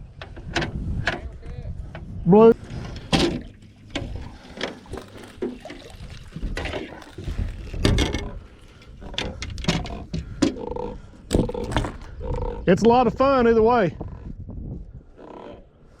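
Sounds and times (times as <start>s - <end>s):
water splashes and drips: 3.2s - 7.2s.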